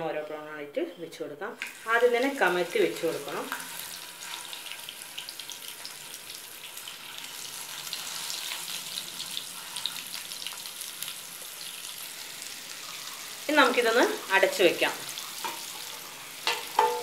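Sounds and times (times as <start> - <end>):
prawns sizzling in oil: 1.6 - 17.0.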